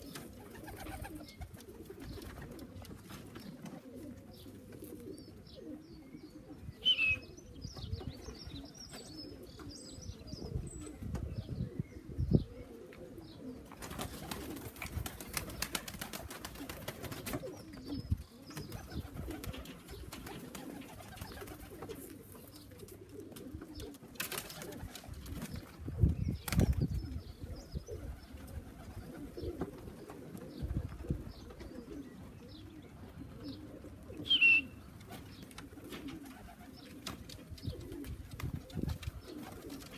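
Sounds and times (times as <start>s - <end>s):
pigeons cooing: 0.0s - 39.9s
wings flapping: 13.8s - 17.6s, 18.6s - 22.2s, 23.9s - 25.7s, 26.4s - 26.9s.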